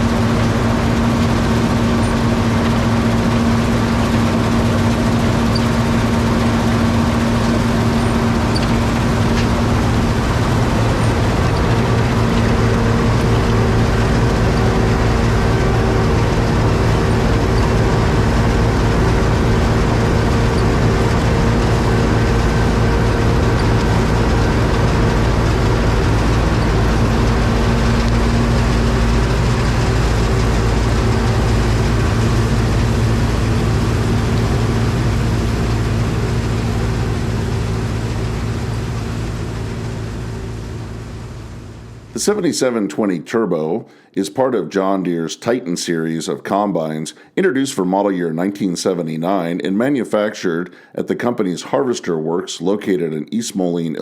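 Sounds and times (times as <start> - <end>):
combine harvester running: 0.0 - 42.6
higher machine tone: 0.0 - 42.6.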